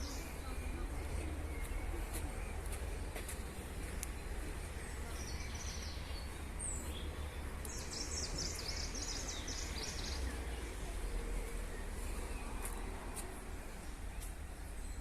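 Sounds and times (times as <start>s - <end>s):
small bird chirping: 3.9s - 12.8s.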